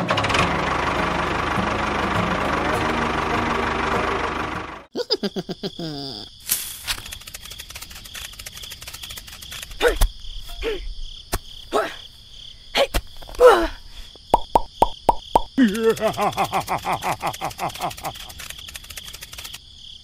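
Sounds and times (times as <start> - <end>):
small motor running: 0.4 - 4.9, 7.0 - 9.8, 15.8 - 19.6
crickets chirring: 5.0 - 20.0.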